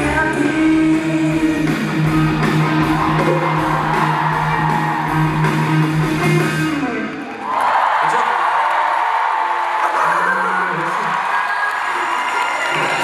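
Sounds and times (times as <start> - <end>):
live band music with guitar: 0.0 - 7.4.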